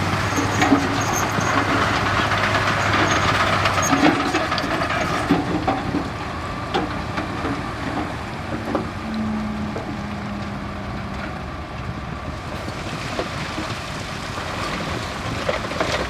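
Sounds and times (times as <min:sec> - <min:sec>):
diesel engine rumbling: 0:00.0 - 0:16.0
steady engine note: 0:08.0 - 0:12.6.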